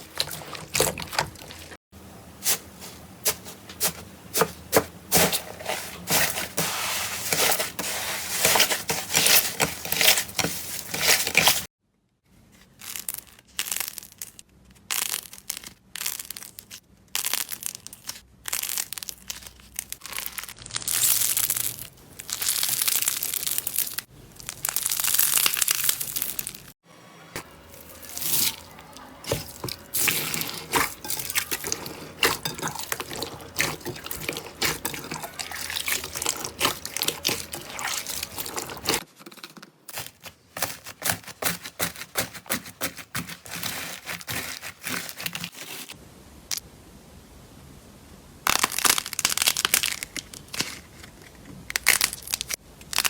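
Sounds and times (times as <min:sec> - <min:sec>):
slime crackling and squishing: 0:12.6 - 0:26.8, 0:27.8 - 0:39.1, 0:39.9 - 0:46.0, 0:48.4 - 0:53.0.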